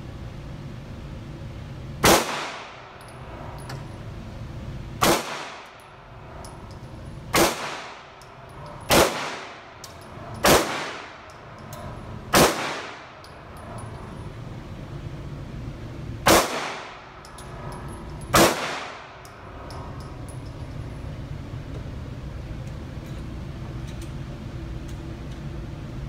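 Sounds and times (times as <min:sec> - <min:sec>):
handgun shots echoing indoors: 0:02.0 - 0:04.0, 0:05.0 - 0:14.1, 0:16.2 - 0:20.6.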